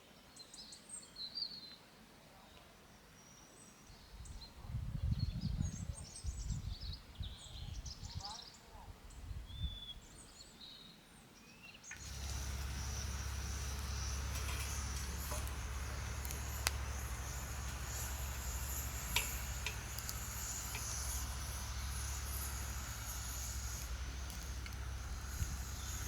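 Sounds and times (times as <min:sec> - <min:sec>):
insects chirring: 0:11.9 - 0:26.0
sharp clicks: 0:12.0 - 0:26.0.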